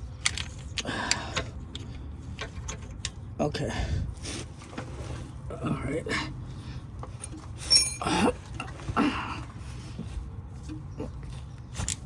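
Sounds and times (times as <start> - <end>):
ratchet socket clinking on metal: 7.2 - 8.1.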